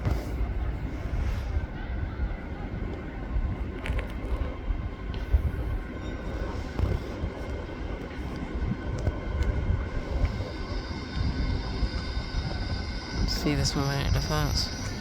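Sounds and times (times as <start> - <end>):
diesel train engines rumbling: 0.0 - 15.0.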